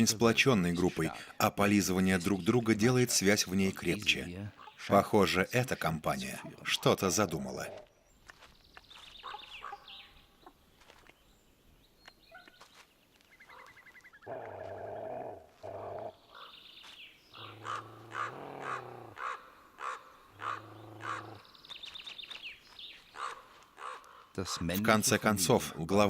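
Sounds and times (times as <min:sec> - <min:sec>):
fast rattling bird calls: 0:04.1 - 0:07.4, 0:17.3 - 0:24.7
crows cawing and croaking: 0:09.2 - 0:09.9, 0:13.4 - 0:21.5, 0:23.0 - 0:24.8.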